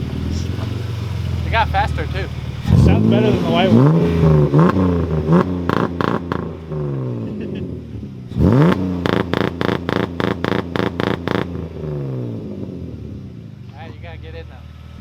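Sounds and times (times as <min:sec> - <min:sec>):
sharp throttle blips: 0:00.0 - 0:06.7, 0:08.4 - 0:11.7
car engine revving loudly: 0:00.0 - 0:13.5.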